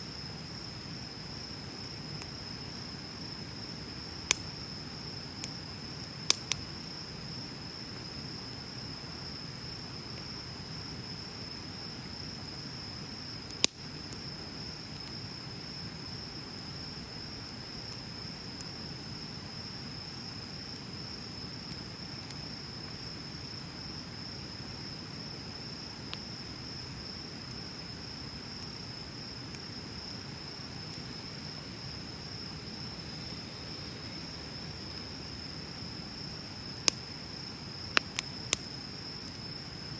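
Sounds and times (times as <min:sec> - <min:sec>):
crickets chirping: 0:00.0 - 0:39.9
bonfire crackling and popping: 0:00.1 - 0:39.9.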